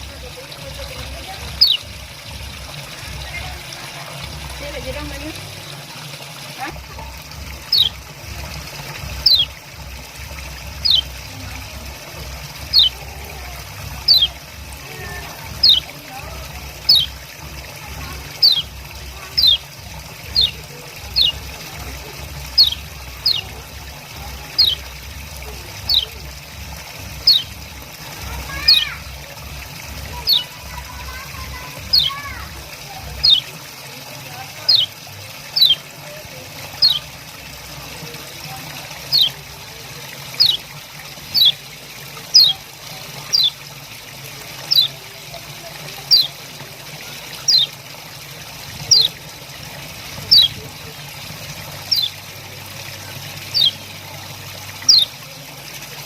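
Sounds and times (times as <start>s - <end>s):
running water trickling: 0.0s - 56.0s
white-eye chirping: 1.6s - 1.8s, 7.7s - 8.0s, 9.2s - 9.5s, 10.8s - 11.1s, 12.7s - 13.0s, 14.0s - 14.4s, 15.6s - 15.9s, 16.8s - 17.2s, 18.4s - 18.7s, 19.4s - 19.6s, 20.3s - 21.4s, 22.5s - 23.5s, 24.6s - 24.8s, 25.9s - 26.1s, 27.2s - 27.5s, 30.2s - 30.5s, 33.2s - 33.5s, 35.6s - 35.8s, 36.8s - 37.0s, 39.1s - 39.4s, 40.4s - 40.6s, 41.3s - 41.6s, 42.3s - 42.6s, 43.3s - 43.6s, 44.7s - 44.9s, 46.1s - 46.3s, 47.5s - 47.7s, 48.9s - 49.2s, 50.3s - 50.6s, 51.9s - 52.2s, 53.5s - 53.8s, 54.9s - 55.1s.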